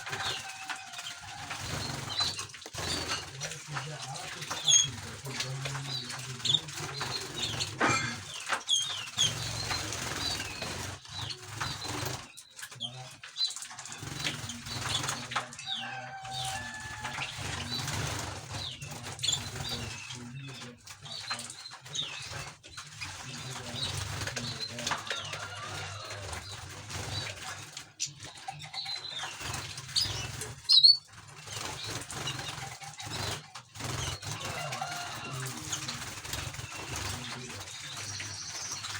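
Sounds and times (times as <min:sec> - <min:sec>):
songbirds chirping: 0:00.0 - 0:38.9
wings fluttering: 0:00.0 - 0:38.9
high bird chirps: 0:28.0 - 0:31.1.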